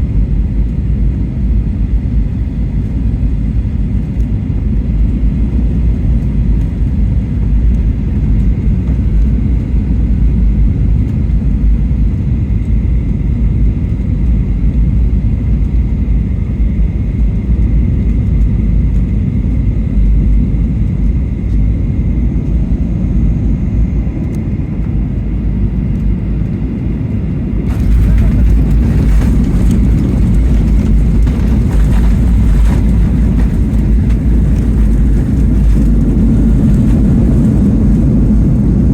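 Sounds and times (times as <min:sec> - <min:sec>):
aircraft cabin engine rumble: 0:00.0 - 0:38.9
rushing roar of landing: 0:27.7 - 0:38.6.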